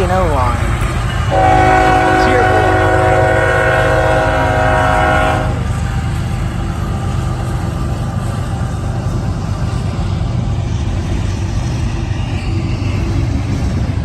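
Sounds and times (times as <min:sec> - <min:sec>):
locomotive air horn: 0:01.3 - 0:05.7.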